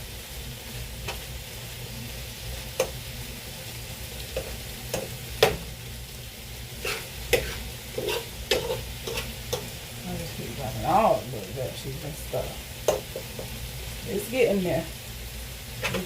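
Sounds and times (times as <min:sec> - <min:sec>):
steak sizzling in a pot: 0:00.0 - 0:16.0.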